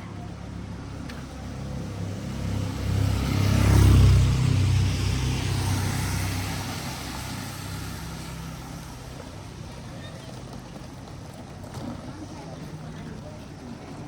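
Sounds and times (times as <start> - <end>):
vehicle engine rumble: 0.0 - 14.0
tyres hissing on wet road: 1.2 - 9.9.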